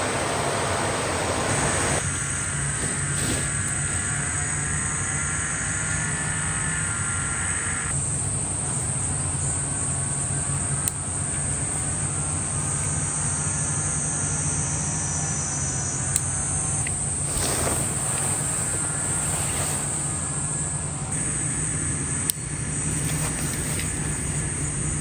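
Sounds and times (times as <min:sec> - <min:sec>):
high-pitched insect drone: 0:00.0 - 0:25.0
low steady rumble: 0:00.0 - 0:25.0
lower insect buzzing: 0:00.0 - 0:25.0
faint clicks: 0:10.5 - 0:12.0, 0:16.0 - 0:25.0.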